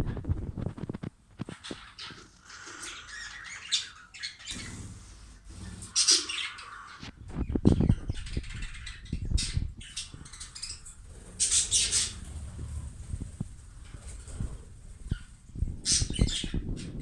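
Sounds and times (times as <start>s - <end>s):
birds rustling: 0.0s - 17.0s
budgerigars chirping: 1.6s - 17.0s
low thumps: 9.2s - 17.0s.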